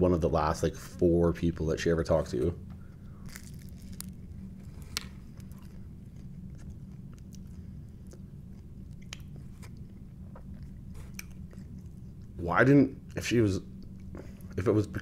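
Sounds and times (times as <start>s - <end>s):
steady low hum: 0.0s - 15.0s
person chewing crunchy crust: 2.8s - 12.4s.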